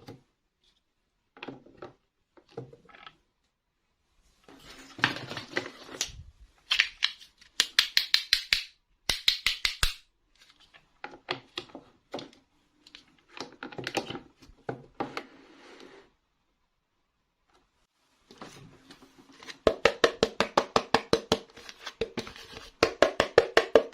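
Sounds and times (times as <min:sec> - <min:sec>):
plastic pieces clicking: 0:06.0 - 0:10.0.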